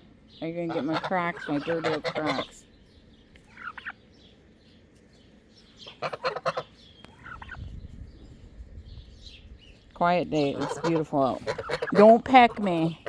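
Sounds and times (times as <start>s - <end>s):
poultry calling: 0.4s - 7.8s, 10.0s - 13.0s.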